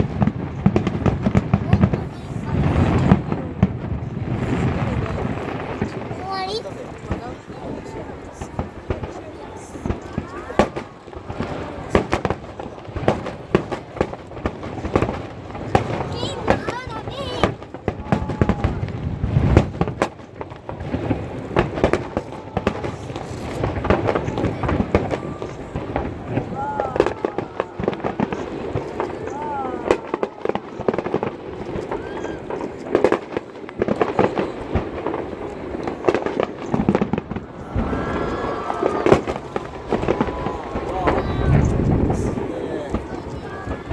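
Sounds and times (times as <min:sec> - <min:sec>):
crowd murmur: 0:00.0 - 0:43.9
fireworks bangs: 0:00.0 - 0:43.9
fireworks rumble and crackle: 0:00.0 - 0:43.9.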